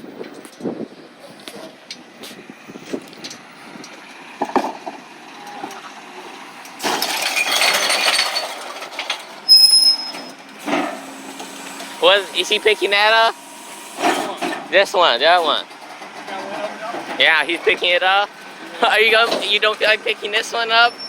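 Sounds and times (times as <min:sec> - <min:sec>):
recyclables knocking and clinking: 0:06.7 - 0:12.0, 0:14.0 - 0:19.9
loud clattering crash: 0:06.8 - 0:11.5
short high squeal: 0:09.5 - 0:11.0.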